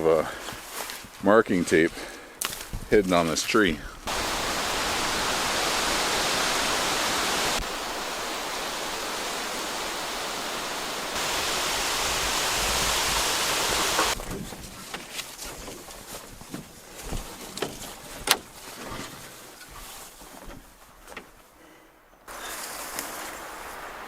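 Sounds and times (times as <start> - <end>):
fast-flowing water rushing: 4.0 - 14.2
faint rustles and clicks: 14.1 - 21.6.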